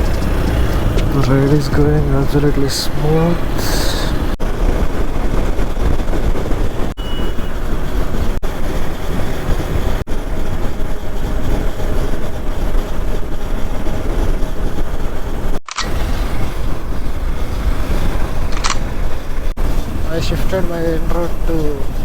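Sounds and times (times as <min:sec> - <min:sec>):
motorcycle engine running: 0:00.0 - 0:21.9
wind on microphone: 0:00.0 - 0:22.0.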